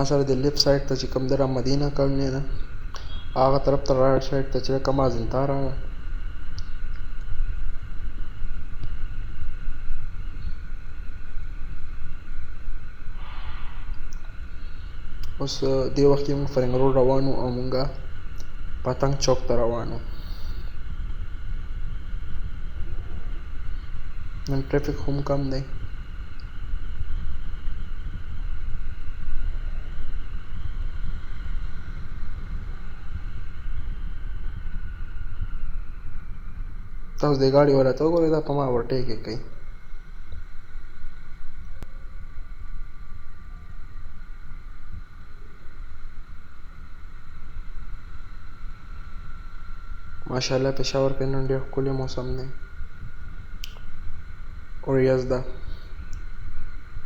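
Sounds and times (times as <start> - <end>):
wind rushing over microphone: 0.0 - 57.0
brief hiss: 2.8 - 3.6, 13.1 - 15.4
wind buffeting microphone: 20.7 - 38.0.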